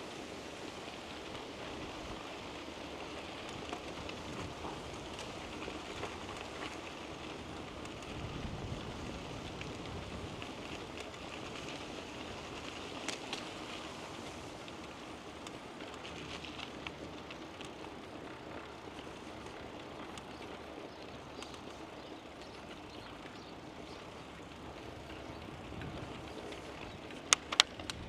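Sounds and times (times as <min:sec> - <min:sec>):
bicycle tyres rolling on path: 0:00.0 - 0:28.0
wind on microphone: 0:08.0 - 0:10.7
sharp clicks: 0:27.2 - 0:28.0.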